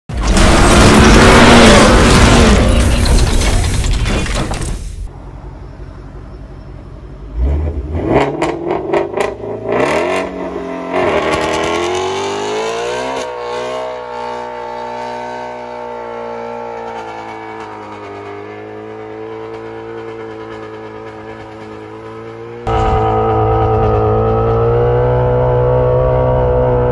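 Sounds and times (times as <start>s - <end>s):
car engine revving: 0.1s - 3.5s, 6.9s - 26.9s.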